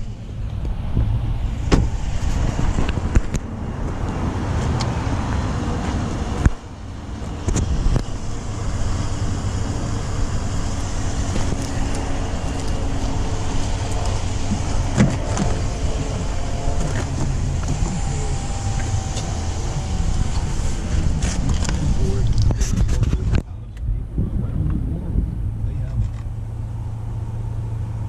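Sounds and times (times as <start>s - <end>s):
traffic rumble: 0.0s - 28.0s.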